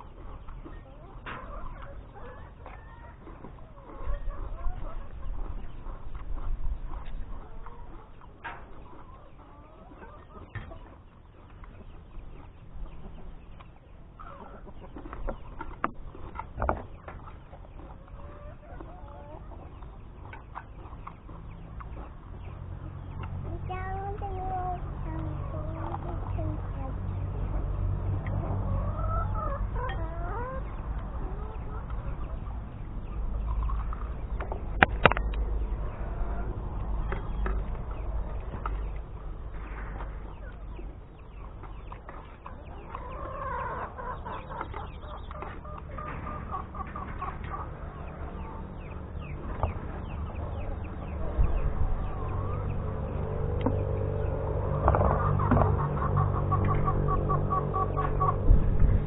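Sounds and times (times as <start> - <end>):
chickens clucking: 0.0 - 59.0
steady low rumble: 0.0 - 59.0
sharp clicks or knocks: 34.4 - 35.4.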